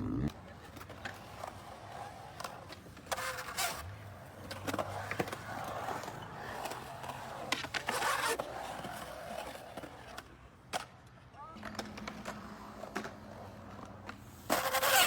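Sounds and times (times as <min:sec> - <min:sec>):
hard wheels rolling over pavement: 0:00.3 - 0:10.2, 0:11.5 - 0:15.0
sharp clacks and scrapes: 0:00.8 - 0:10.9.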